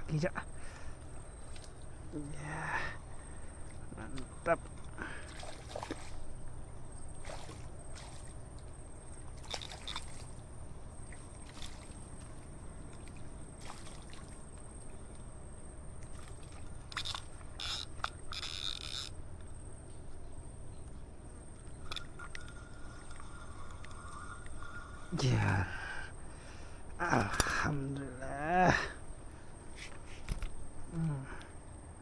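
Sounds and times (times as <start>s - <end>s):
water sloshing and splashing: 3.1s - 19.7s, 21.0s - 26.8s.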